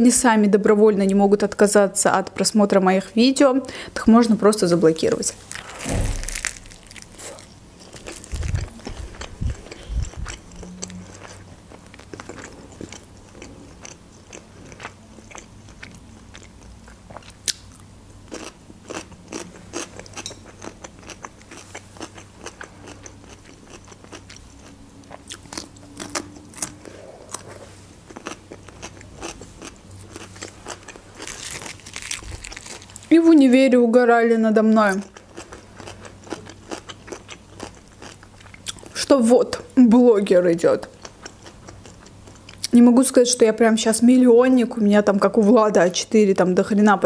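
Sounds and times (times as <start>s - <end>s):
crisp pastry crunching: 5.0s - 33.2s, 35.0s - 39.0s.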